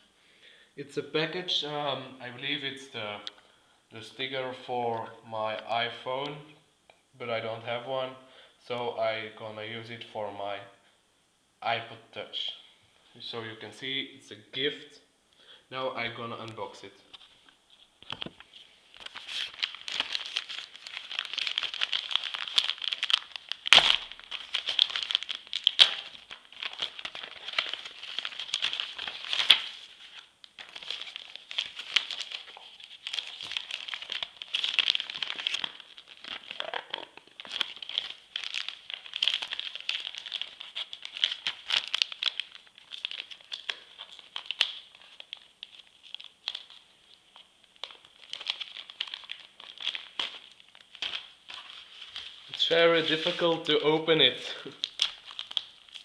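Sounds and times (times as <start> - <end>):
package wrapping crinkling and tearing: 16.5 - 56.0
sharp snaps of packaging: 21.4 - 27.9.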